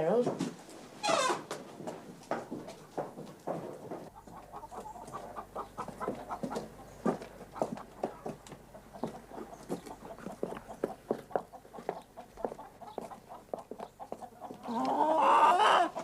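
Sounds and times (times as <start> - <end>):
hens clucking: 2.7 - 16.0
loud drawn-out hen call: 14.6 - 16.0.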